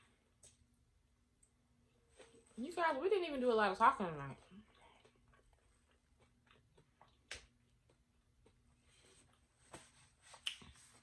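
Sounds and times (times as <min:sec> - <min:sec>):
faint chewing and mouth clicks: 0:00.3 - 0:01.6, 0:04.3 - 0:09.4, 0:10.3 - 0:11.0.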